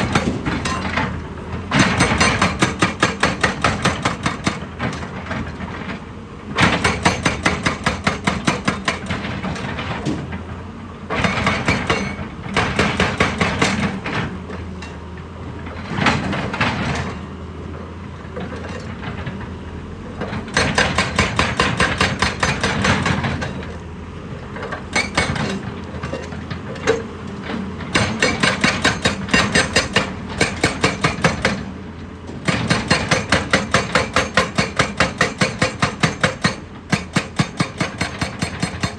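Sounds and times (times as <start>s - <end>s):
machinery hammering rock: 0.0s - 5.0s, 6.6s - 9.5s, 11.1s - 14.3s, 20.3s - 23.7s, 24.7s - 25.7s, 27.9s - 31.7s, 32.3s - 38.9s
engine hum: 9.0s - 33.6s.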